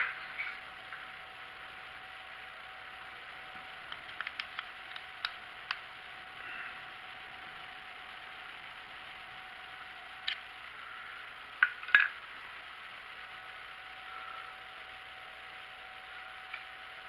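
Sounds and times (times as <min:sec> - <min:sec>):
sharp metallic clicks: 0:03.9 - 0:05.8.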